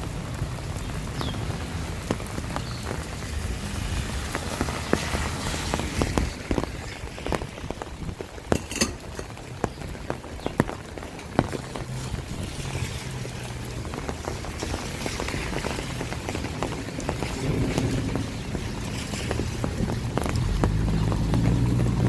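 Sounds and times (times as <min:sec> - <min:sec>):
rain pattering: 0:00.0 - 0:22.0
heavy drops striking hard surfaces: 0:08.5 - 0:09.4.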